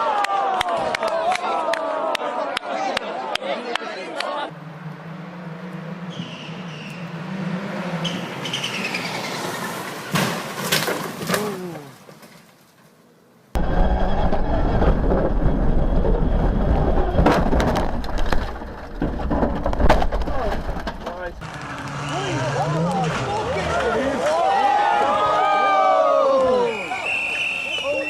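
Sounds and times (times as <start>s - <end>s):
rally car engine: 4.4s - 10.7s, 13.6s - 24.6s
scattered knocks: 17.0s - 21.4s.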